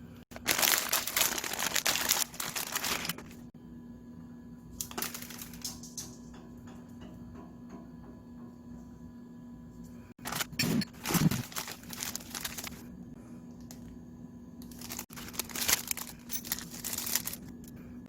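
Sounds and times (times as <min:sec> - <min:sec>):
plastic packet crinkling: 0:00.3 - 0:03.5, 0:10.2 - 0:12.8, 0:14.7 - 0:17.6.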